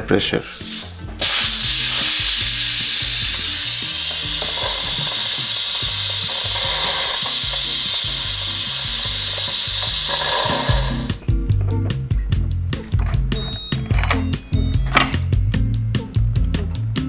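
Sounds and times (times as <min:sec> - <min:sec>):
pressure cooker venting steam: 0:00.5 - 0:11.2.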